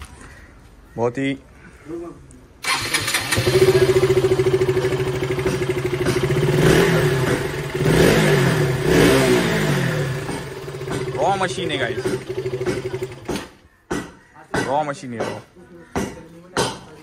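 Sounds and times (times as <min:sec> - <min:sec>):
motorcycle engine idling and revving: 0:02.6 - 0:13.6.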